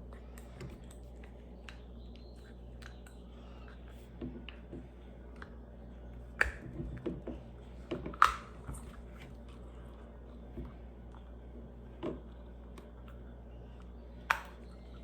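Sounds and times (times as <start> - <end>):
plastic pieces snapping together: 6.4 - 6.7, 8.0 - 8.8.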